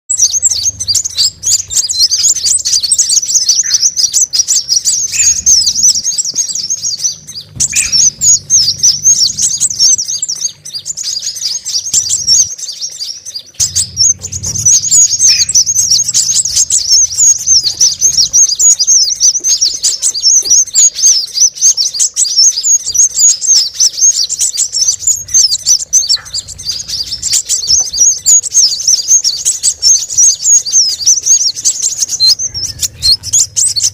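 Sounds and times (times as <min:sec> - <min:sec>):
small birds chattering and twittering: 0:00.0 - 0:33.9
faint low hum: 0:00.1 - 0:20.7.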